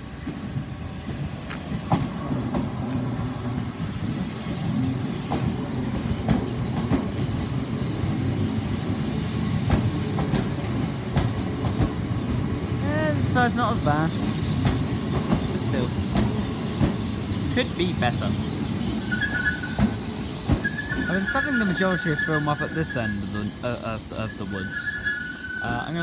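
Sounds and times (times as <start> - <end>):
train wheels rumbling on rail: 0.0 - 26.0
wheels clicking over rail joints: 9.6 - 12.4.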